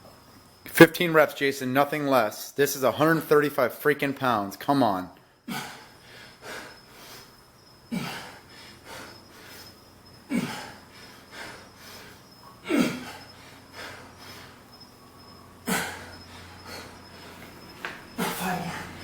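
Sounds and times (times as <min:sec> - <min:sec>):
man breathing quickly: 0:05.5 - 0:19.0.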